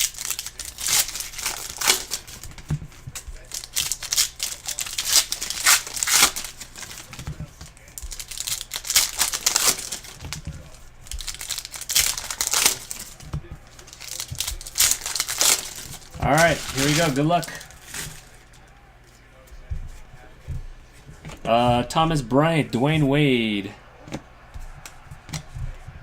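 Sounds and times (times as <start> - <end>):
wrapping tearing: 0.0 - 18.8
plastic wrapping crinkling: 0.0 - 19.1.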